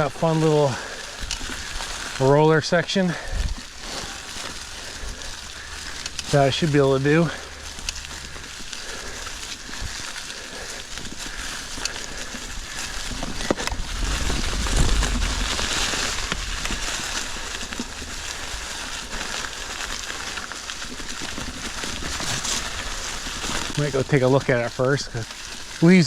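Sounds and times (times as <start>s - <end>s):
bike clicks and rattles: 0.0s - 26.0s
tyres crunching through leaves: 0.0s - 26.0s
wind on microphone: 13.1s - 16.8s.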